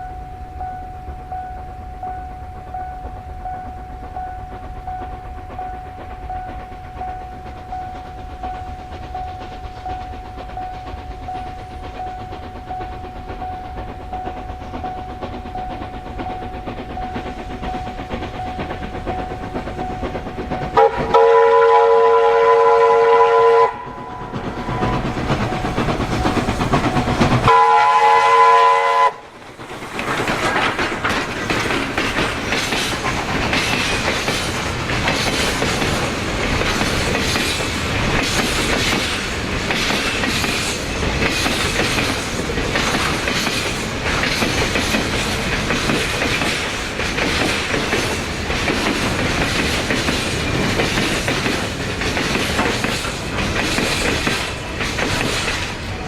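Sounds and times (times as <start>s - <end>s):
train whistle chord: 0.0s - 29.3s
train rumbling past: 0.0s - 56.0s
wheels clattering on rails: 1.1s - 56.0s.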